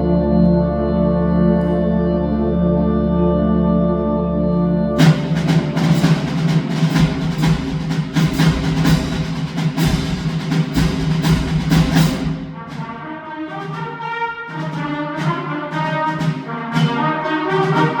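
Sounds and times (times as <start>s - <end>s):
sustained brass chords: 0.0s - 18.0s
concert band playing: 5.0s - 13.8s
drum strikes: 5.0s - 18.0s.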